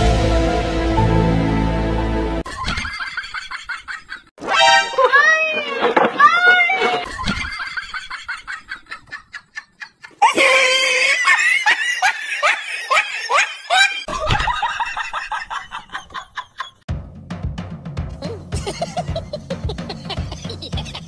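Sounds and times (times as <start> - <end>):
person laughing hard: 7.0 - 16.8, 18.2 - 21.0.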